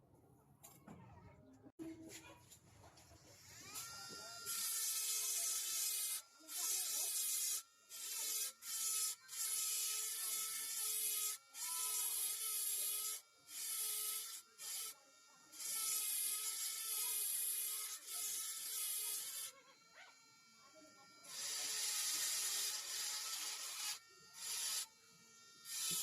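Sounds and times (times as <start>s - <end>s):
carving tool rasping on wood: 3.7s - 15.0s, 15.6s - 19.6s, 21.3s - 24.9s, 25.7s - 26.0s.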